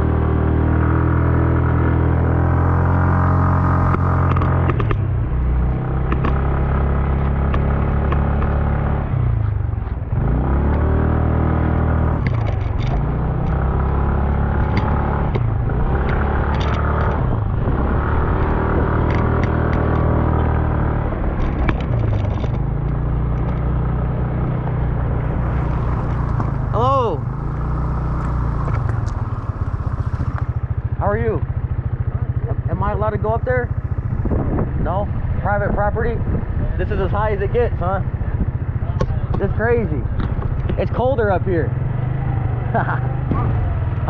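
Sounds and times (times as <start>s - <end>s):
motorcycle engine under load: 0.0s - 44.0s
clatter and knocks from rough road: 3.8s - 10.1s, 12.1s - 17.6s, 18.2s - 23.9s, 24.9s - 31.0s, 38.3s - 41.2s, 42.7s - 43.8s.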